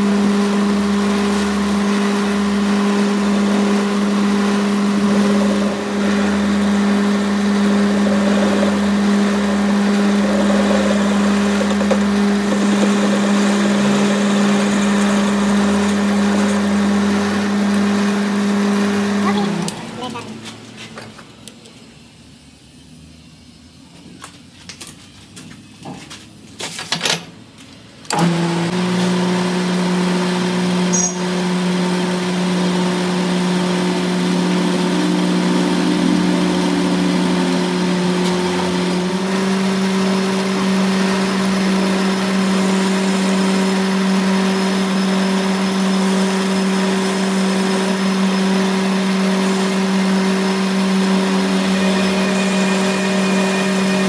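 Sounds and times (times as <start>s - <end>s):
machine motor humming: 0.0s - 20.4s, 28.1s - 54.0s
knocks and clicks: 8.6s - 16.0s.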